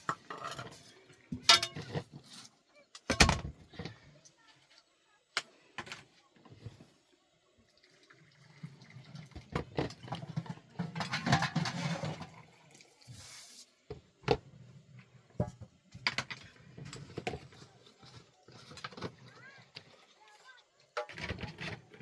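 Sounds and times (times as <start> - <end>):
water pouring and splashing: 7.6 - 13.9, 16.4 - 22.0.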